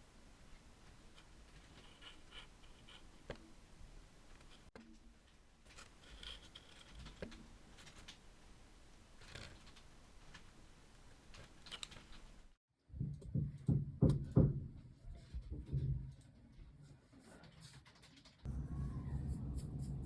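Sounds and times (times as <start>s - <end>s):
light scratching and ticks: 0.9s - 3.4s.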